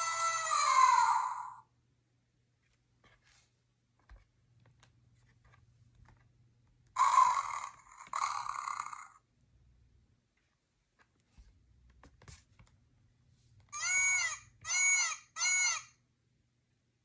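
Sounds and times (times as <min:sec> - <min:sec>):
recorded animal cries: 0:00.0 - 0:01.7, 0:07.0 - 0:09.2, 0:13.7 - 0:16.0
paper page rustling: 0:02.6 - 0:06.3.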